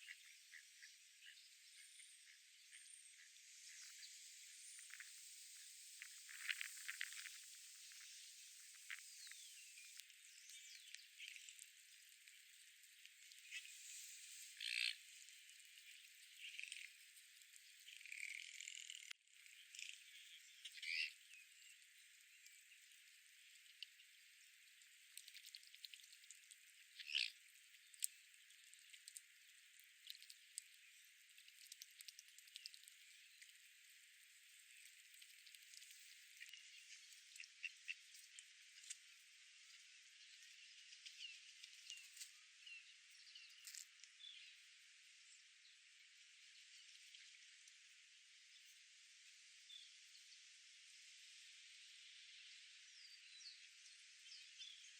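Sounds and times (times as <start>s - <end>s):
steady soft hiss: 2.7s - 17.7s.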